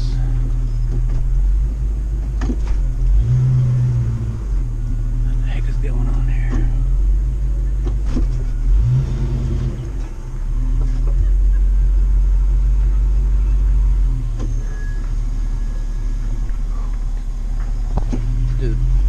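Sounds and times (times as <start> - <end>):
motorhome engine rumbling: 0.0 - 19.0
thin squeak: 14.4 - 16.2.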